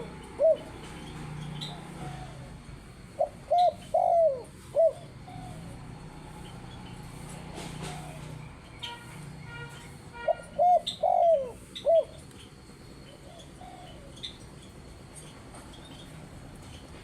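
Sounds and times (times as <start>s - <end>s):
dove cooing: 0.0s - 9.0s, 10.2s - 12.3s, 13.1s - 14.4s.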